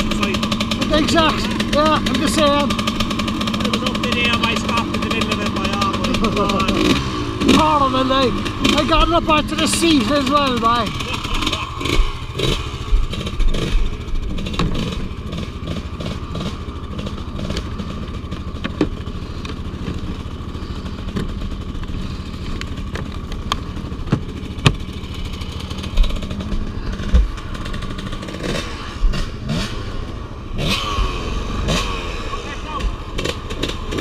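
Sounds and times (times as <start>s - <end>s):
off-road vehicle engine running: 0.0s - 34.0s
sharp clicks and knocks: 11.2s - 15.1s, 16.4s - 17.7s, 18.3s - 20.2s, 21.1s - 25.0s, 25.8s - 29.3s.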